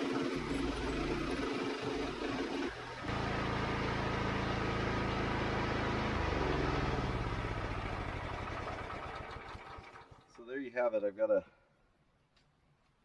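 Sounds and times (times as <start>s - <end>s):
sawmill engine running: 0.0s - 10.2s.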